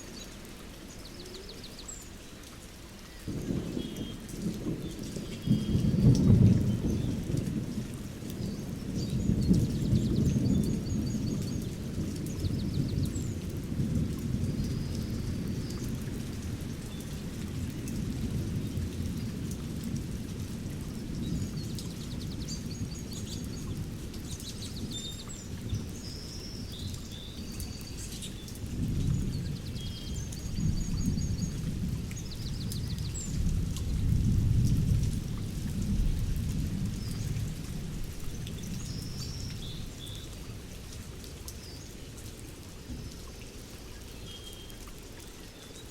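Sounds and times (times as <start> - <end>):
small birds chirping: 0.0 - 2.5
steady rain: 0.0 - 45.9
low rolling thunder: 3.3 - 24.9, 28.6 - 40.0.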